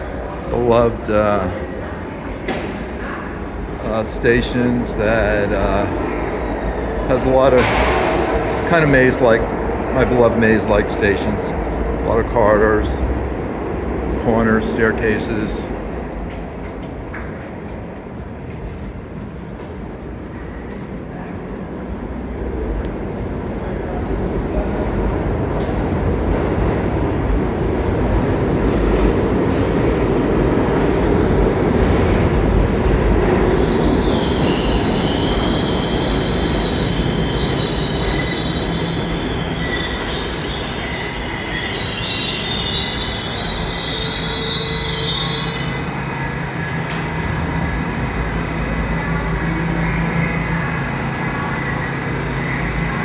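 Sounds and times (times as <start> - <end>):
subway train rumbling: 0.0 - 53.0
train wheels squealing: 33.2 - 53.0.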